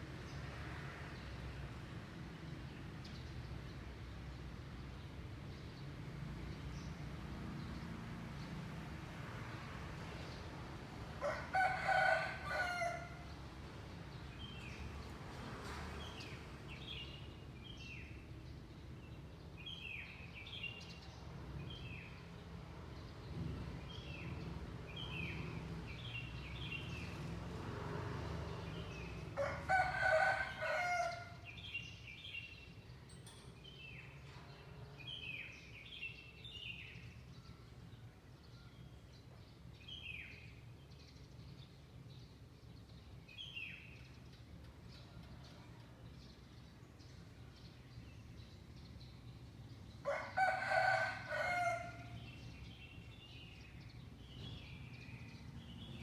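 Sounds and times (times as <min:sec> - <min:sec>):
rooster crowing: 0:11.2 - 0:13.2, 0:29.4 - 0:31.4, 0:50.1 - 0:52.2.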